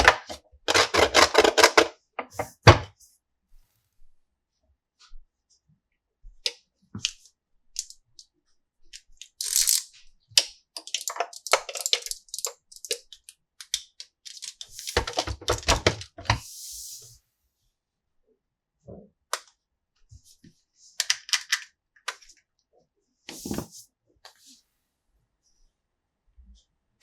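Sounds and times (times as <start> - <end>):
plastic pieces clicking: 9.2 - 16.2, 21.0 - 22.2.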